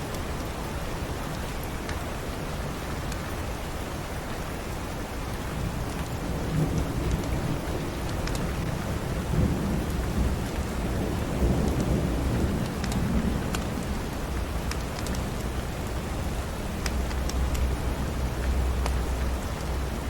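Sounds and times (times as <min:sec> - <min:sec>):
steady rain: 0:00.0 - 0:20.0
rolling thunder rumble: 0:06.2 - 0:14.6.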